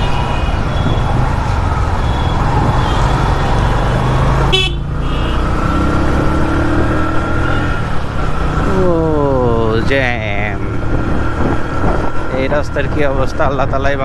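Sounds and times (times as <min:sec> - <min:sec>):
vehicle horns tooting: 0:00.0 - 0:01.2, 0:01.9 - 0:05.7
road traffic: 0:00.0 - 0:14.0.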